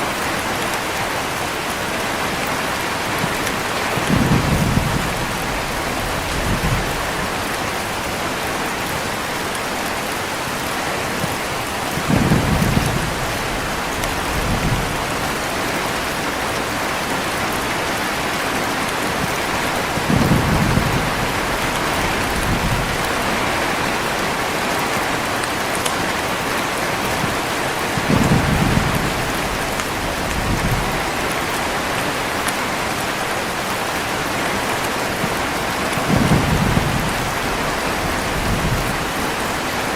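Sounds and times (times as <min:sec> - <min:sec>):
heavy rain falling: 0:00.0 - 0:39.9
thunder rumbling: 0:03.2 - 0:08.9, 0:11.2 - 0:18.0, 0:18.9 - 0:25.7, 0:27.0 - 0:31.9, 0:35.3 - 0:39.9.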